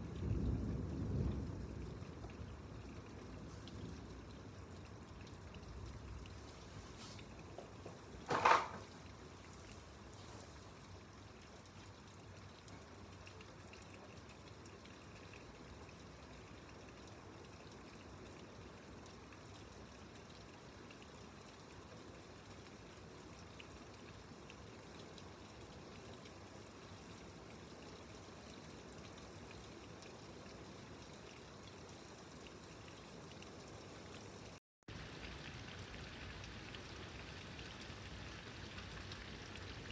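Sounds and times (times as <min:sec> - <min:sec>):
heavy rain: 0:00.0 - 0:10.8, 0:34.9 - 0:39.9
trickling water: 0:00.0 - 0:39.9.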